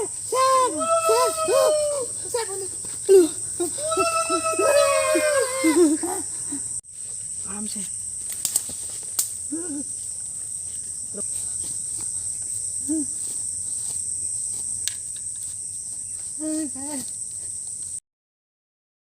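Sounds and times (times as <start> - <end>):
insects chirring: 0.0 - 18.0
low rising and falling calls: 3.2 - 6.2.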